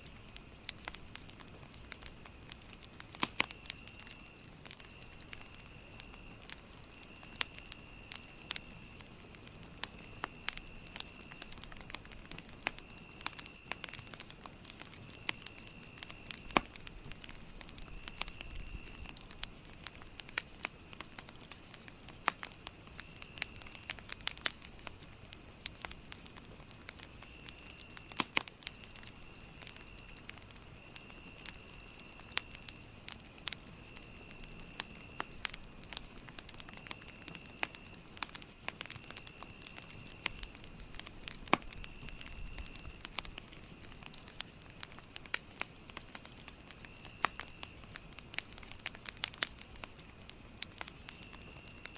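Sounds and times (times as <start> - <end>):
campfire crackling and popping: 0.0 - 51.9
rapid insect chirp: 0.0 - 51.9
high insect trill: 6.8 - 21.0.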